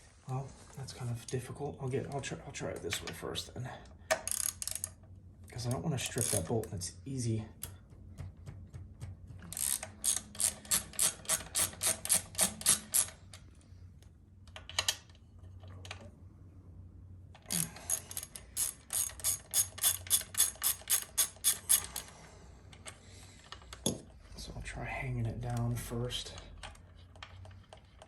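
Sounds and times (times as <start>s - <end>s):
ratchet wrench clicking: 4.1s - 5.0s, 9.5s - 13.3s, 17.5s - 22.1s.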